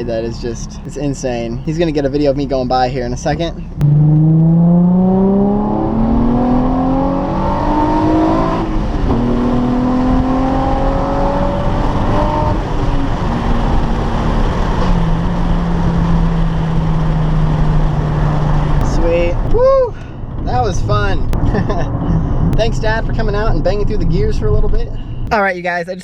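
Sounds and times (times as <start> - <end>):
car engine accelerating through gears: 3.7 - 19.6.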